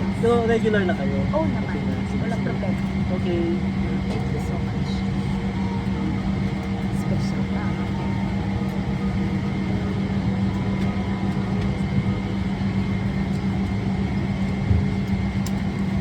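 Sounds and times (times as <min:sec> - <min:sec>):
air-conditioning drone: 0:00.0 - 0:16.0
faint high whine: 0:04.8 - 0:15.6.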